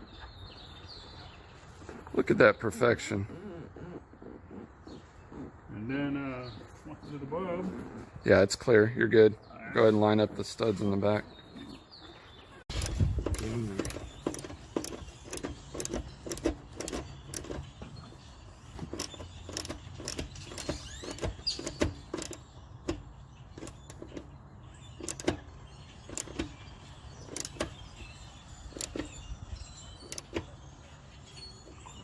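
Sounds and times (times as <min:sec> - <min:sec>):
metal seat frame clicking and knocking: 0:12.7 - 0:18.0, 0:18.7 - 0:24.3, 0:25.0 - 0:28.0, 0:28.7 - 0:29.2, 0:30.0 - 0:30.6.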